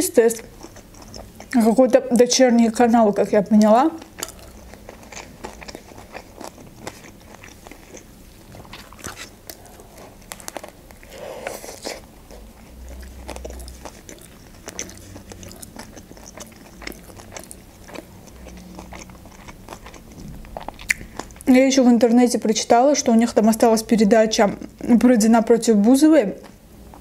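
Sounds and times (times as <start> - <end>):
wet chewing and crunches: 0.3 - 2.3, 3.2 - 21.5.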